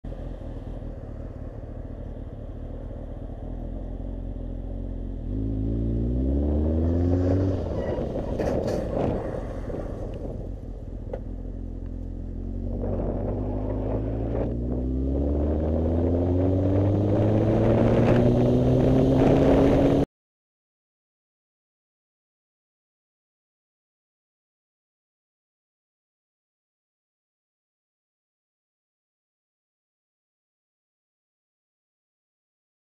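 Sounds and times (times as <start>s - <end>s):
motorcycle engine accelerating: 0.1s - 20.1s.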